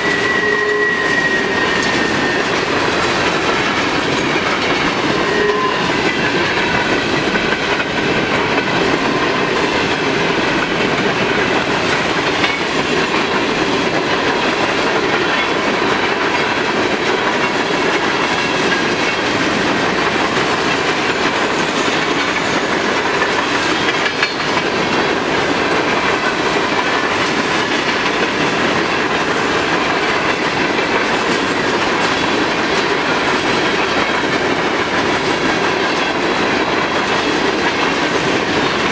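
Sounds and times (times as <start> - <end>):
faint wheel squeal: 0.0 - 3.2
freight train rolling past: 0.0 - 38.9
wheels clicking over rail joints: 1.1 - 38.9.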